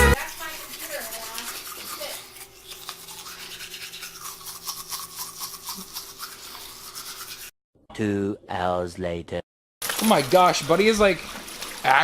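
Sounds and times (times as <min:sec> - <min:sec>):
toothbrush scrubbing teeth: 0:00.0 - 0:07.5.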